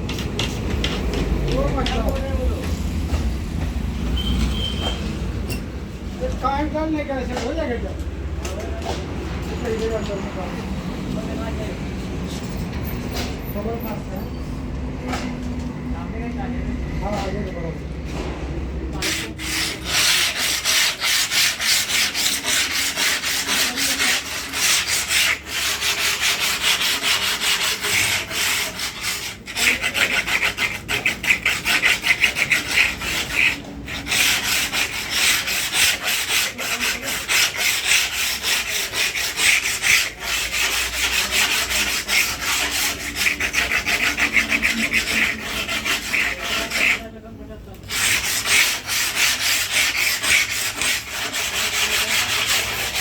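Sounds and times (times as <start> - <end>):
rasping strokes on glass: 19.0 - 47.2, 47.8 - 53.0.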